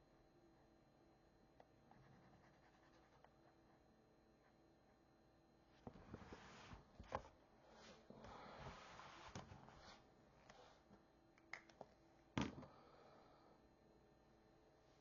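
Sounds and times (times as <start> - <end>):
marker scratching on paper: 1.9 - 3.3.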